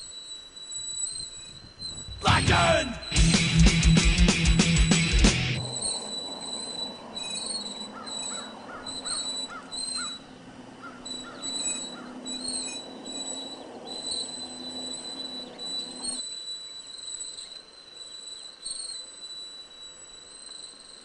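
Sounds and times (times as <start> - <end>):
small bird chirping: 0.0 - 2.3, 4.6 - 21.0
faint outdoor hiss: 4.9 - 21.0.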